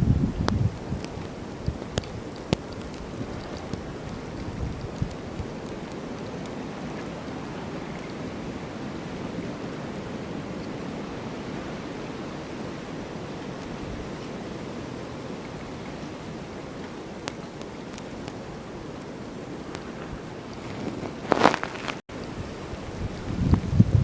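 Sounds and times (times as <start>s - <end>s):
snowstorm wind rushing: 0.0s - 24.0s.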